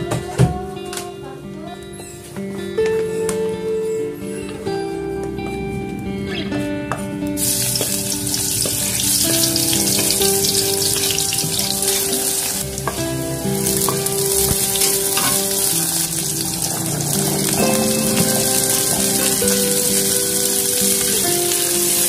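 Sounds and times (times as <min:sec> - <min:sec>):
shallots sizzling in hot oil: 0:07.4 - 0:22.0.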